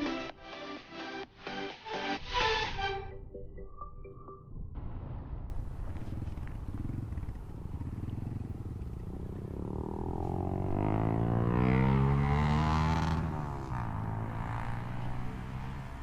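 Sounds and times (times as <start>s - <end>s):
motorcycle engine running: 5.5s - 15.5s.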